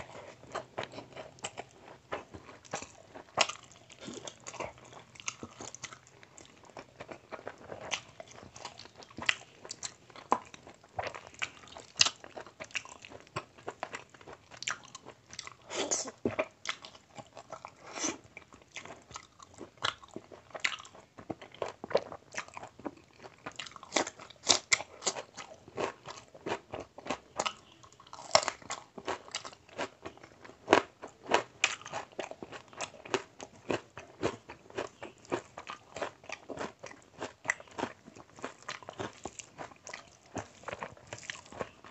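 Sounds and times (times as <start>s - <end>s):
man chewing food: 0.0s - 41.9s.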